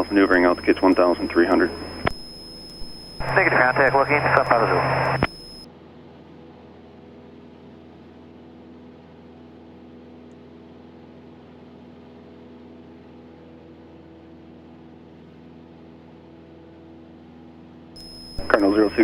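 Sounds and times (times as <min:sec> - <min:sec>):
airplane engine and propeller drone: 0:00.0 - 0:10.1, 0:18.0 - 0:19.0.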